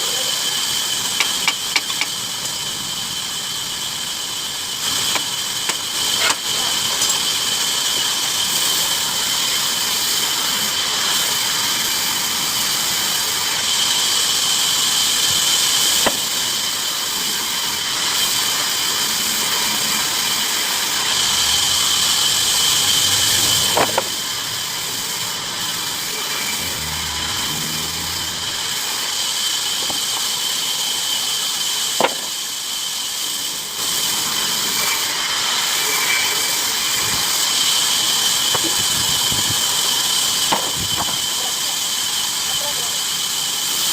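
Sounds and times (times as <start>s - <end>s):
bandsaw cutting wood: 21.0s - 29.2s.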